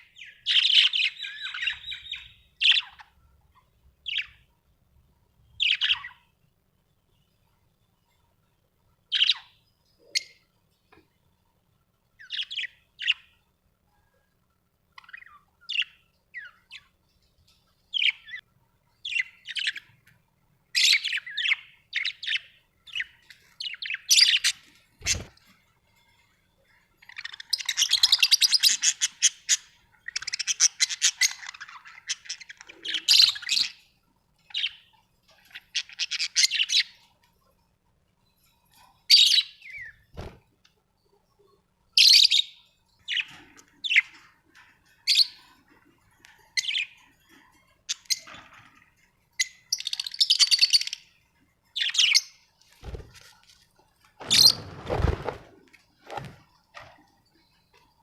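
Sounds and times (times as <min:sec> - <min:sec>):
budgerigars chirping: 0:00.1 - 0:03.1, 0:05.6 - 0:06.2, 0:27.0 - 0:33.8.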